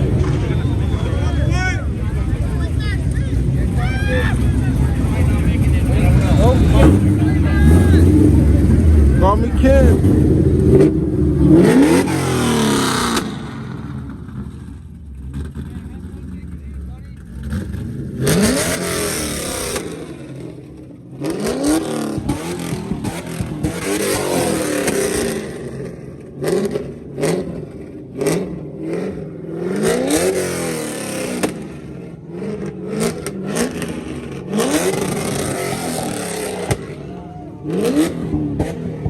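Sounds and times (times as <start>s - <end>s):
exhaust backfire pops: 0.0s - 1.2s, 21.7s - 28.6s, 31.3s - 31.9s, 32.6s - 37.0s
car engine revving: 0.0s - 39.0s.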